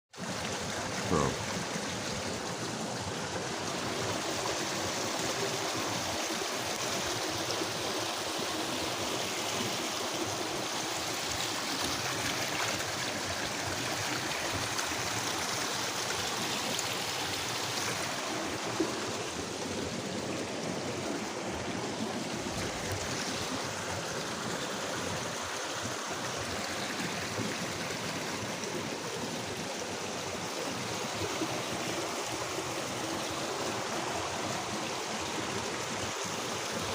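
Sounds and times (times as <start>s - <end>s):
running water rushing: 0.1s - 36.9s.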